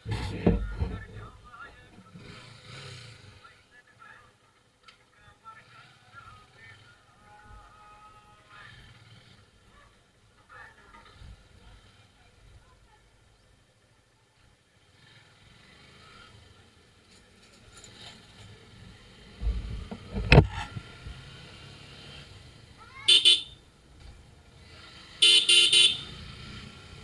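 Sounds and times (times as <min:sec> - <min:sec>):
loud low rumble with sharp knock: 0:19.4 - 0:20.8
vehicle horns honking: 0:23.0 - 0:23.7, 0:25.2 - 0:26.4.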